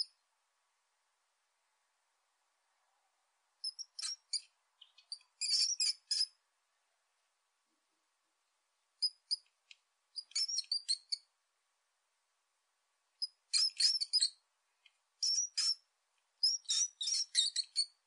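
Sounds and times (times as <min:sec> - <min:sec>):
marmots squealing: 0:03.7 - 0:06.3, 0:10.2 - 0:11.2, 0:13.5 - 0:14.3, 0:15.2 - 0:15.8, 0:16.4 - 0:18.0.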